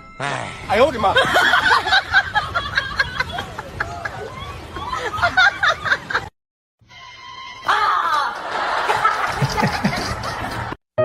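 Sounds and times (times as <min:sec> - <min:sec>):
people laughing: 0:01.1 - 0:06.3, 0:08.1 - 0:10.8.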